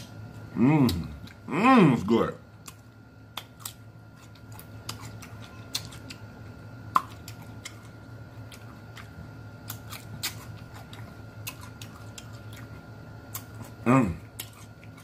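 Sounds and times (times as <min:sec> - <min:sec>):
mouth chewing sounds: 0:00.0 - 0:01.5, 0:02.5 - 0:15.0
faint steady hum: 0:00.0 - 0:15.0.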